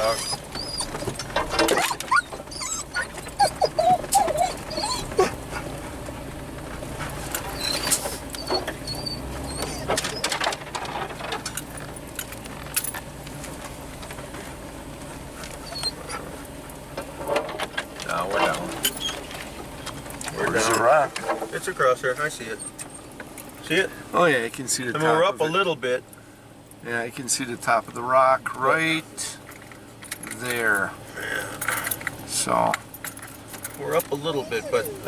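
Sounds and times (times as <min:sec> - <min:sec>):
dog whining: 0:00.0 - 0:06.0, 0:07.0 - 0:10.5, 0:15.1 - 0:16.5, 0:22.4 - 0:23.2, 0:33.8 - 0:35.0
truck driving rumble: 0:00.0 - 0:35.0
knocks and rattles: 0:09.6 - 0:15.8, 0:16.9 - 0:20.3.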